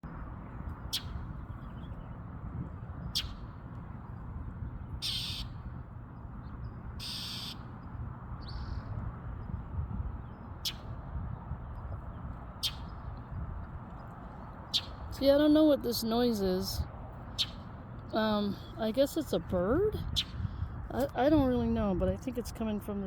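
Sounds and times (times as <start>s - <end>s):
low steady rumble: 0.0s - 23.0s
small bird calling: 0.8s - 2.2s, 3.0s - 3.6s, 4.8s - 5.7s, 6.6s - 9.0s, 10.2s - 11.0s, 12.2s - 13.2s, 14.4s - 15.3s, 15.9s - 18.9s.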